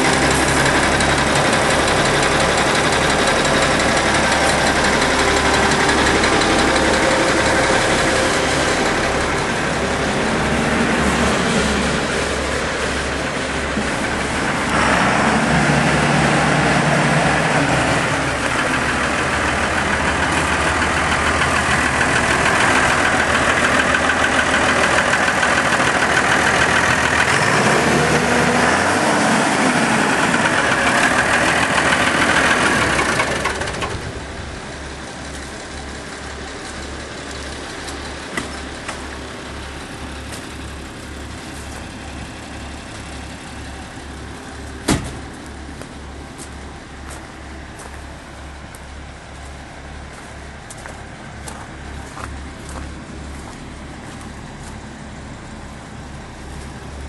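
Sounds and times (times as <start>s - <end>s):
tractor diesel engine revving: 0.0s - 57.0s.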